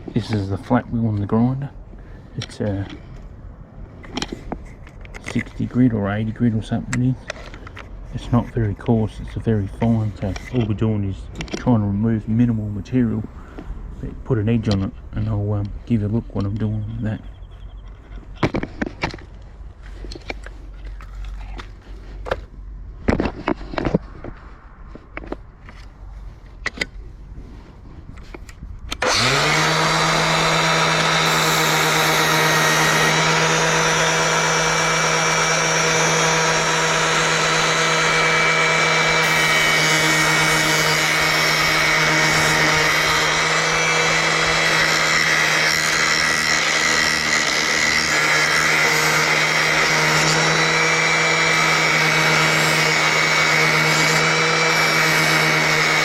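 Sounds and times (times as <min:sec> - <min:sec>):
angle grinder sharpening blade: 0:29.0 - 0:56.0.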